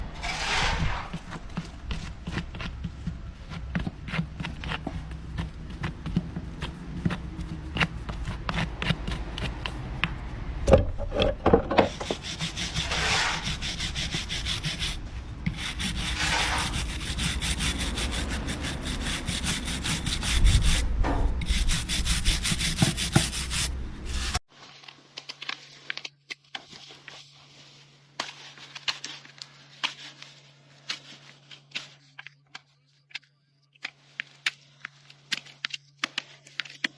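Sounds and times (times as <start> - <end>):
rasp filing a hoof: 0.2 - 9.9, 11.8 - 24.4.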